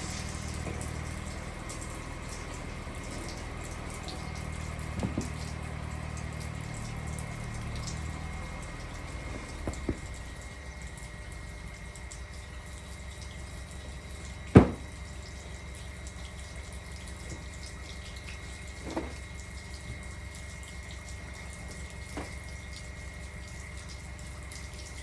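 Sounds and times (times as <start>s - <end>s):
water running: 0.0s - 25.0s
sharp knock: 14.6s - 14.9s.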